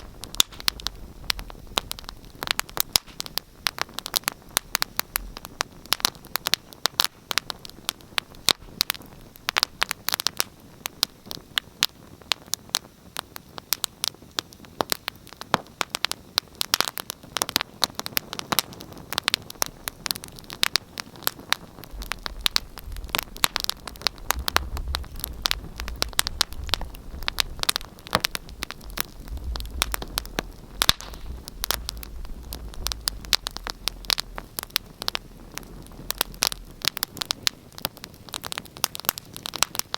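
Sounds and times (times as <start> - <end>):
fire crackling and popping: 0.0 - 39.9
soft hiss: 0.0 - 39.9
low rumble: 21.8 - 37.0.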